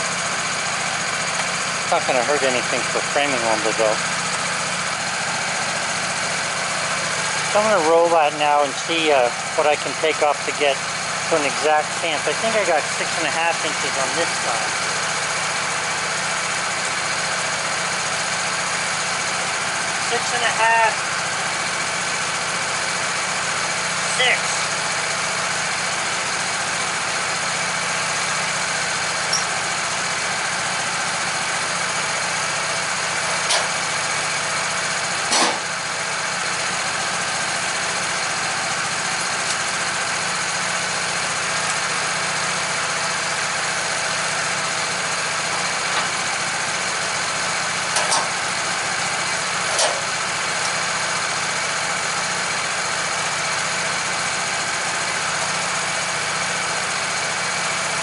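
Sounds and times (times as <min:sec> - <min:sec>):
sawmill engine running: 0:00.0 - 0:58.0
short knocks or clanks: 0:35.3 - 0:35.7, 0:48.0 - 0:48.3, 0:49.7 - 0:50.1.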